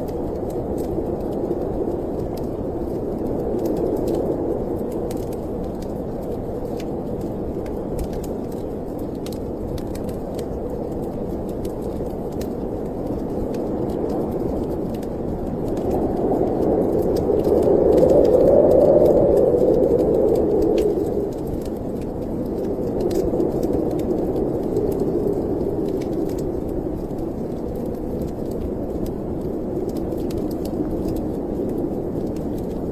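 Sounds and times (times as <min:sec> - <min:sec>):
snowstorm wind blowing: 0:00.0 - 0:32.9
wood fire crackling: 0:00.0 - 0:32.9.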